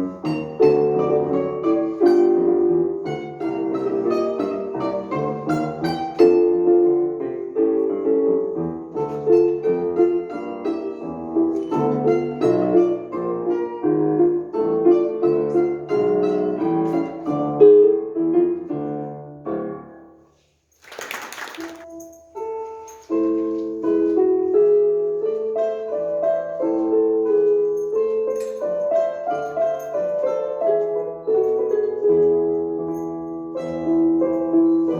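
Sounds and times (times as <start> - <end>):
classical piano piece: 0.0 - 34.9.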